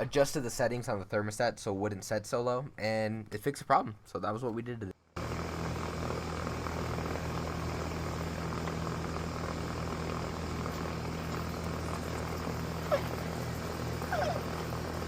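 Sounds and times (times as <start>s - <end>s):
air conditioner humming: 5.2s - 15.0s.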